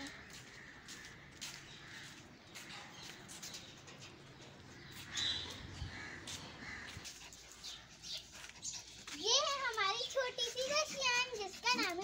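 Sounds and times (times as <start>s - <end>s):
bird calls: 0.0s - 9.0s.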